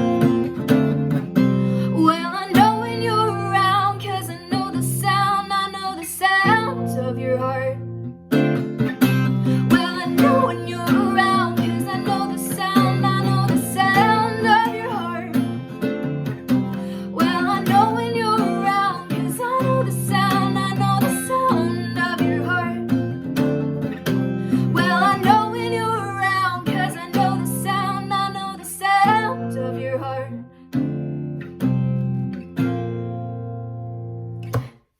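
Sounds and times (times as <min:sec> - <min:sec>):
strummed acoustic guitar: 0:00.0 - 0:34.8
person singing: 0:01.9 - 0:07.8, 0:09.6 - 0:15.4, 0:17.0 - 0:22.8, 0:24.5 - 0:30.4.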